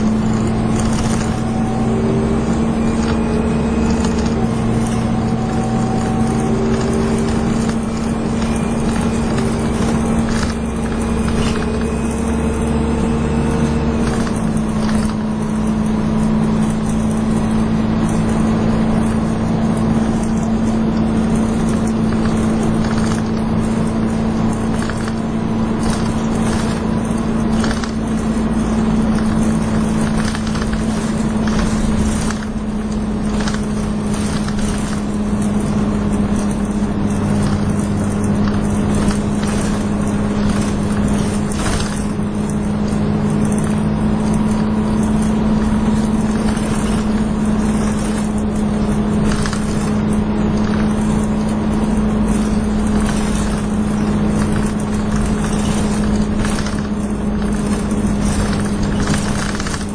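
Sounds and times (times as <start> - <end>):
bus whine and engine noise: 0.0 - 59.9
rattles and knocks from bus body: 0.0 - 59.9
road noise: 0.0 - 59.9.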